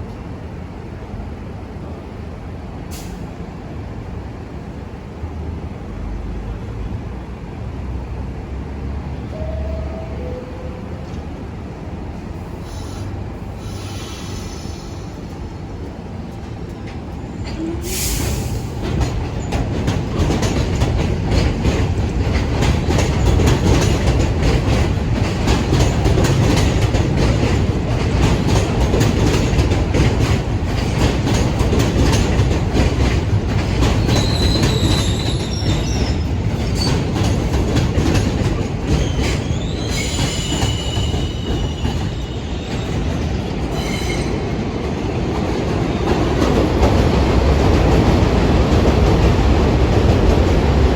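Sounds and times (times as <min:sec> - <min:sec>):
train rumbling: 0:00.0 - 0:50.9
wheels clacking over rail joints: 0:16.2 - 0:50.9
high wheel squeals: 0:34.0 - 0:37.1, 0:38.9 - 0:43.1, 0:43.7 - 0:44.5.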